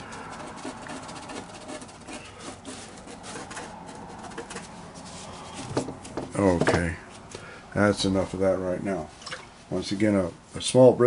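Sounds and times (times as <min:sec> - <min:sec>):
bristle brush scrubbing paper: 0:00.0 - 0:06.0.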